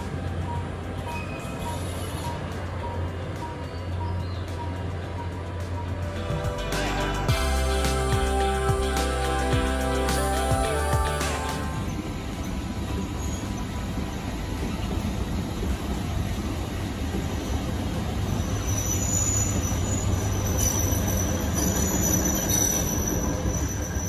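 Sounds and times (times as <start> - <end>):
train rumbling on rails: 0.0 - 24.0
high wheel squeal: 0.5 - 6.1, 11.8 - 14.0, 18.2 - 24.0.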